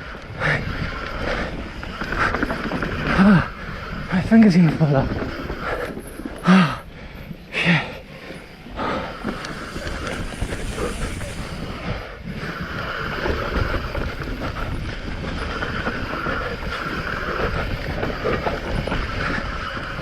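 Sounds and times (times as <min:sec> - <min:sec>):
bike tyres rattling on stones: 0:00.0 - 0:20.0
wind on microphone: 0:08.6 - 0:20.0.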